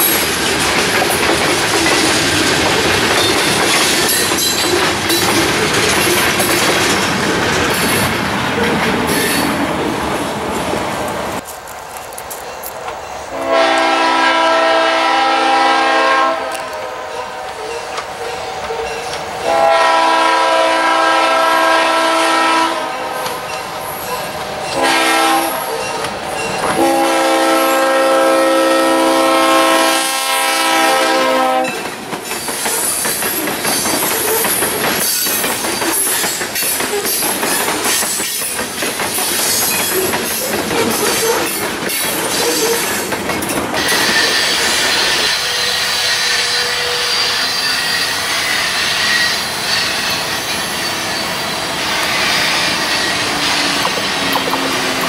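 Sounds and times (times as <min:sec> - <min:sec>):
wheels clacking over rail joints: 0:00.0 - 0:09.6, 0:31.6 - 0:55.0
locomotive air horn chord: 0:13.3 - 0:17.6, 0:19.4 - 0:23.2, 0:24.8 - 0:25.8, 0:26.8 - 0:31.8
steady high squeal: 0:43.8 - 0:55.0.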